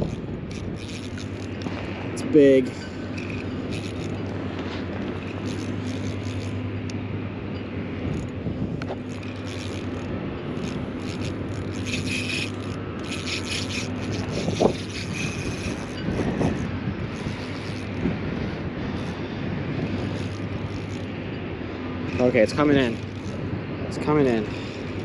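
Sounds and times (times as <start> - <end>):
low hum: 0.0 - 25.0
wind noise: 0.0 - 25.0
rubbing and scraping: 8.9 - 18.0.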